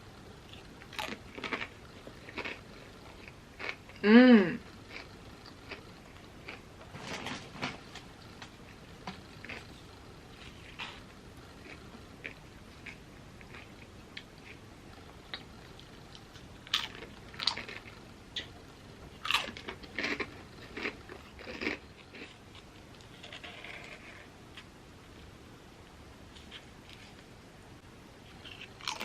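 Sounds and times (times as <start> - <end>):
chips being chewed: 0.5 - 4.0, 9.4 - 9.7, 11.6 - 14.6, 15.2 - 18.6, 19.2 - 24.1, 28.3 - 29.0.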